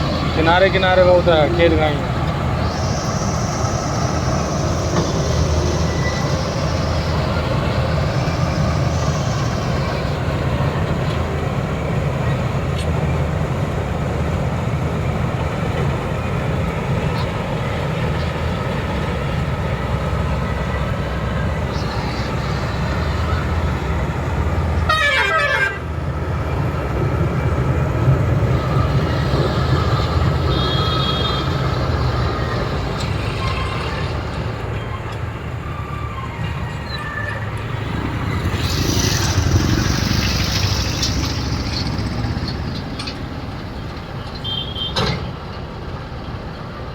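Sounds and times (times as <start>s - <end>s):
burst of hiss: 0.0s - 10.8s
diesel engine running: 0.0s - 46.9s.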